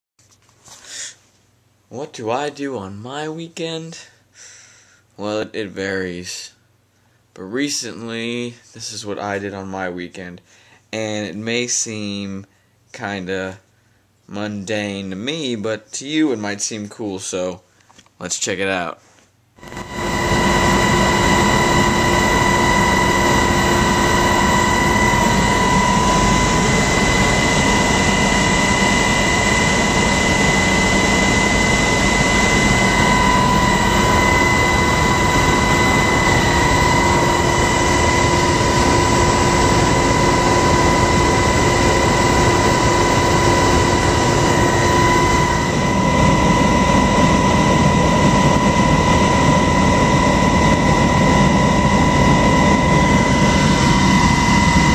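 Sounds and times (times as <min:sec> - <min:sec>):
helicopter engine and rotor drone: 0:19.6 - 0:54.9
steady whining tones: 0:19.6 - 0:54.9.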